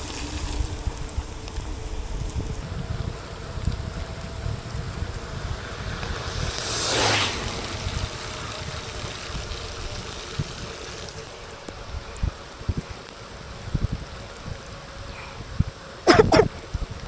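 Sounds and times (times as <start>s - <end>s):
wet road noise: 0.0s - 17.0s
wind rumbling on microphone: 0.0s - 17.0s
rush of wet hiss: 2.6s - 11.6s.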